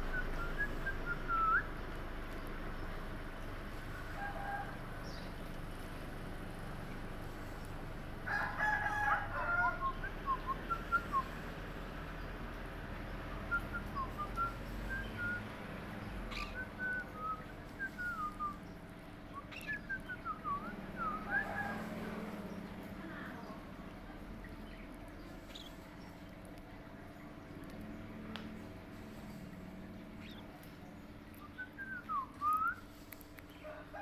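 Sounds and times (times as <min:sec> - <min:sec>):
parrot chirping and whistling: 0:16.3 - 0:18.5, 0:19.5 - 0:21.5.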